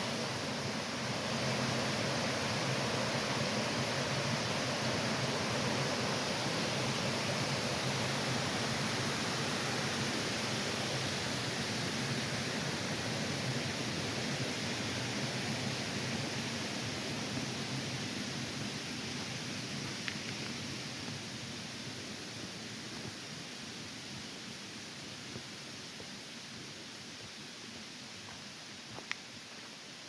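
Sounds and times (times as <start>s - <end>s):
stream water rushing: 0.0s - 20.1s.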